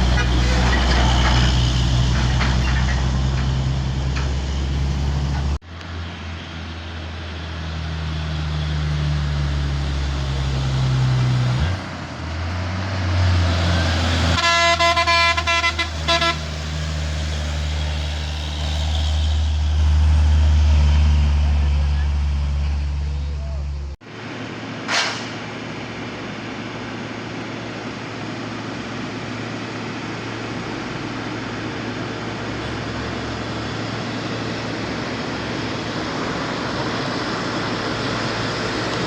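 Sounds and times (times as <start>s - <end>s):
truck engines droning: 0.0s - 39.0s
vehicle horn short toots: 14.4s - 16.4s.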